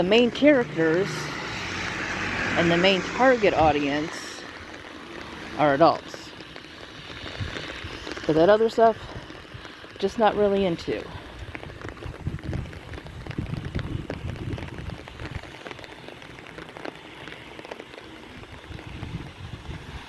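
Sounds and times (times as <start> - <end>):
raindrops ticking: 0.0 - 20.0
steady rain hiss: 0.0 - 20.0.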